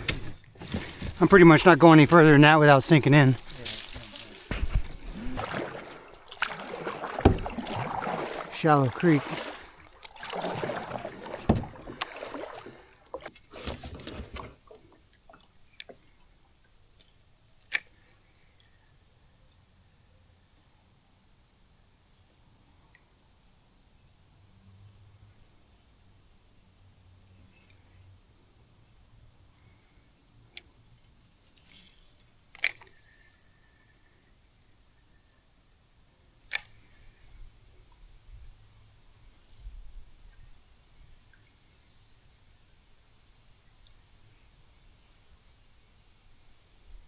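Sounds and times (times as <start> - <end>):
low rumbling handling noise: 0.0 - 16.1
sharp clicks: 17.0 - 18.1, 31.6 - 33.1, 36.4 - 37.0.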